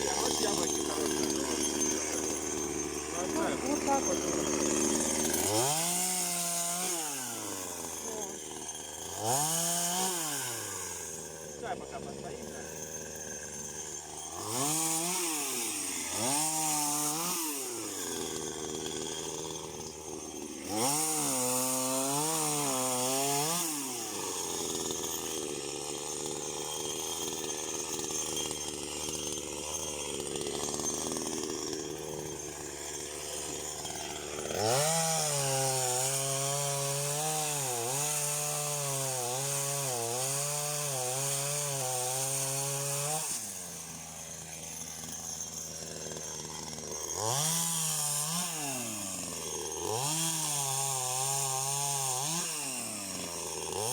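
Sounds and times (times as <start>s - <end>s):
small petrol engine revving: 0.0s - 25.1s, 33.4s - 43.5s, 46.2s - 53.9s.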